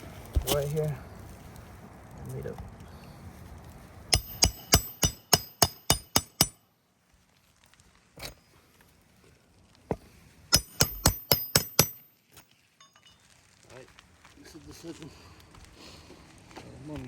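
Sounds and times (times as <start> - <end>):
hammer striking nails: 4.1 - 6.6, 10.5 - 12.1.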